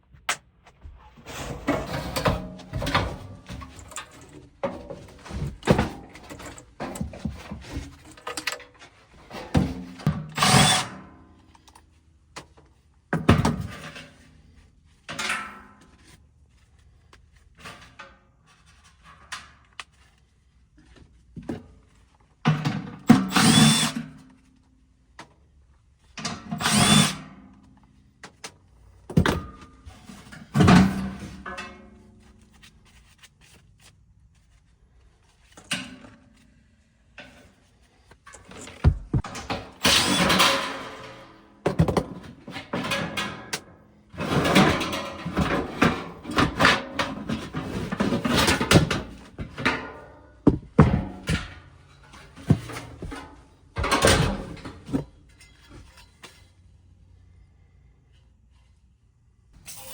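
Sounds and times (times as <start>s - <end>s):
parts knocking and clattering: 0.1s - 10.8s, 28.2s - 32.7s, 37.2s - 56.5s
cordless power drill: 10.4s - 11.0s, 23.2s - 24.0s, 26.6s - 27.2s, 39.8s - 40.5s.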